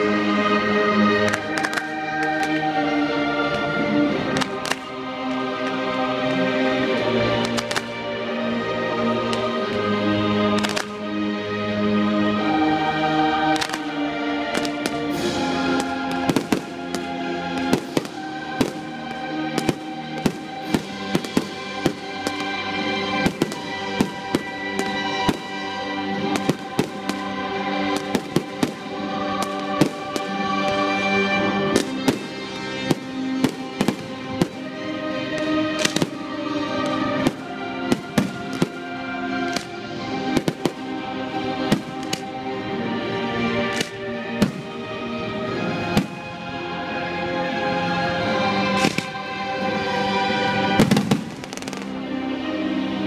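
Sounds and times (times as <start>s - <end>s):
music with held notes: 0.0s - 53.0s
fireworks bangs: 1.3s - 2.7s, 13.5s - 40.9s, 43.7s - 44.9s, 45.8s - 46.3s, 48.8s - 49.2s, 50.8s - 51.9s.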